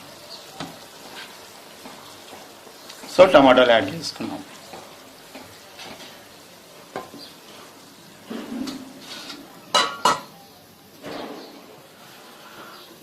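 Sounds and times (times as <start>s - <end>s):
metal spoon scraping a pan: 0.6s - 3.4s, 4.6s - 6.2s, 6.9s - 10.3s.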